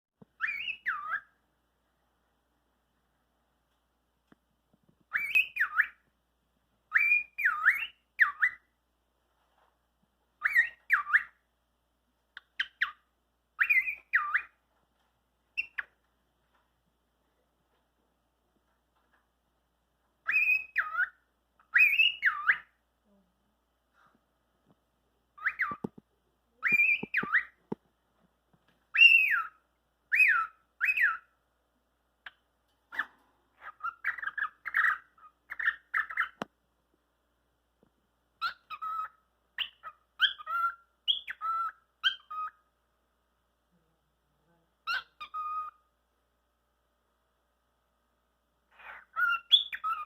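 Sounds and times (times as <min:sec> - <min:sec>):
cockatiel whistling: 0:00.4 - 0:01.3, 0:05.1 - 0:06.0, 0:06.9 - 0:08.7, 0:10.4 - 0:11.4, 0:13.6 - 0:14.6, 0:15.6 - 0:15.9, 0:20.2 - 0:22.7, 0:25.4 - 0:25.9, 0:26.6 - 0:27.6, 0:28.9 - 0:31.3, 0:38.4 - 0:42.6, 0:44.9 - 0:45.8, 0:48.7 - 0:50.0
cockatiel chirps: 0:00.4 - 0:01.4, 0:05.1 - 0:06.0, 0:06.9 - 0:08.8, 0:10.4 - 0:11.5, 0:12.3 - 0:14.6, 0:15.5 - 0:16.0, 0:20.2 - 0:22.8, 0:25.3 - 0:26.0, 0:26.6 - 0:27.7, 0:28.9 - 0:31.4, 0:32.2 - 0:36.5, 0:38.4 - 0:42.7, 0:44.8 - 0:45.9, 0:48.7 - 0:50.0.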